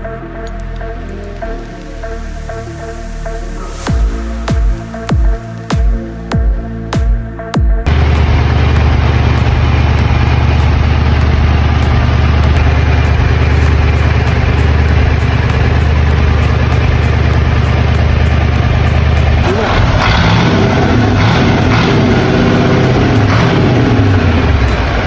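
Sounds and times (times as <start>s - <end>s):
engine idling: 7.9s - 25.0s
rough higher engine sound: 7.9s - 25.0s.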